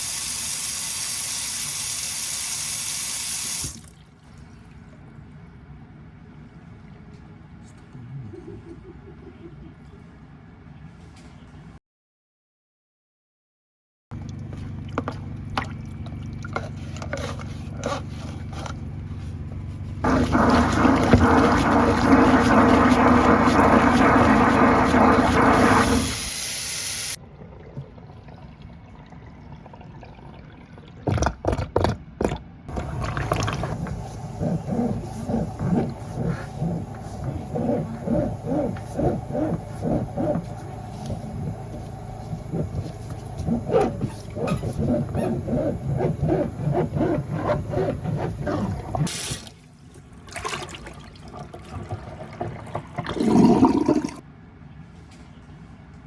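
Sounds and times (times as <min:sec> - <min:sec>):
water draining through sink: 0:00.0 - 0:05.0, 0:14.2 - 0:19.0, 0:20.0 - 0:54.2.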